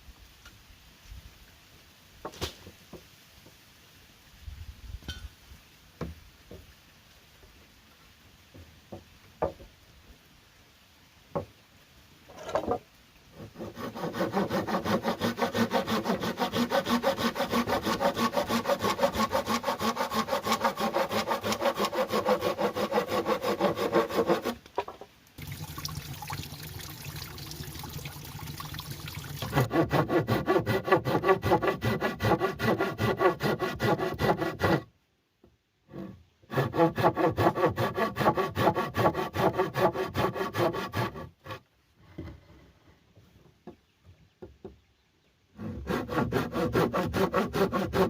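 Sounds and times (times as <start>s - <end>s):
hand saw cutting wood: 13.3s - 24.7s, 29.3s - 34.9s, 35.9s - 41.6s, 45.6s - 48.0s.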